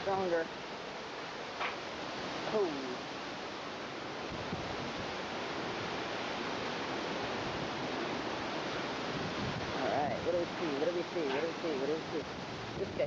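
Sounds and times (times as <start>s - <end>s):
strong wind blowing: 0.0s - 13.0s.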